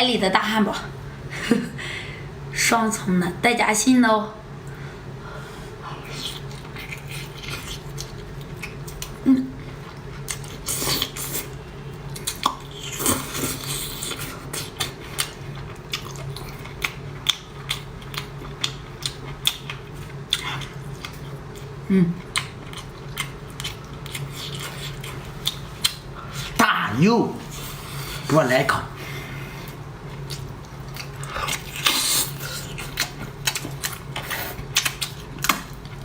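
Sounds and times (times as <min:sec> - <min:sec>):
low steady hum: 0:00.0 - 0:36.0
biting and chewing food: 0:30.1 - 0:36.0.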